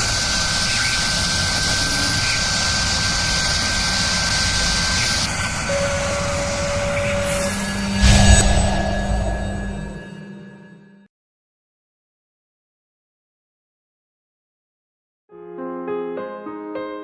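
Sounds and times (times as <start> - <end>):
drilling machine whirring: 0.0 - 8.4
high hiss: 0.0 - 10.1
low hum tone: 5.3 - 10.9.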